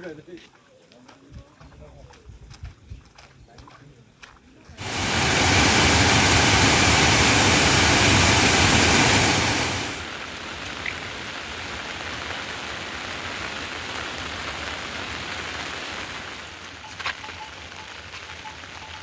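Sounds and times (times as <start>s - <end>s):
rain falling: 4.8s - 19.0s.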